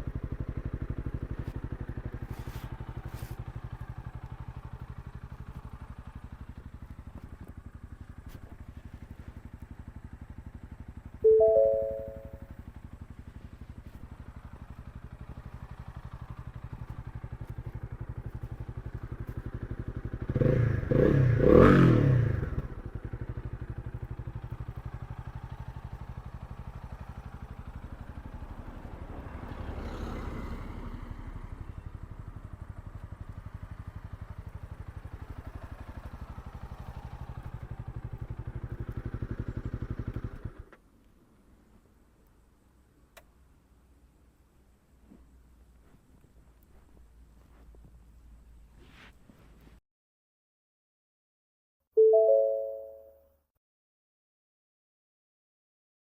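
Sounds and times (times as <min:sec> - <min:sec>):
motorcycle engine idling: 0:00.0 - 0:48.7
motorcycle throttle blips: 0:00.2 - 0:21.7.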